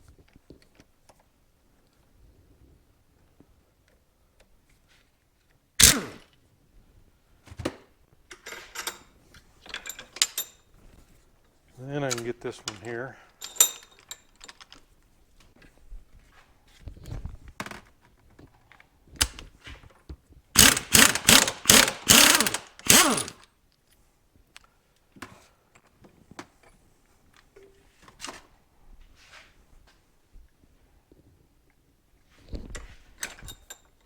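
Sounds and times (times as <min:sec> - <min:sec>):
impact wrench bursts: 0:05.8 - 0:06.2, 0:20.6 - 0:23.4
tool clicks and knocks: 0:20.6 - 0:23.4.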